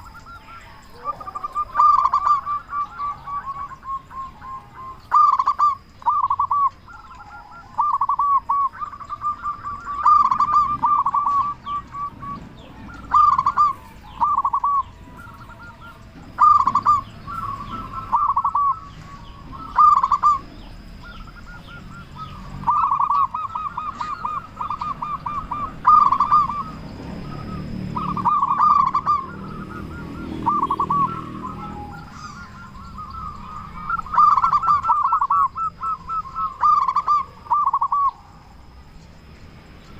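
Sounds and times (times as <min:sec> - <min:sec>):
dove cooing: 0:00.0 - 0:38.9
small birds chirping: 0:00.0 - 0:39.9.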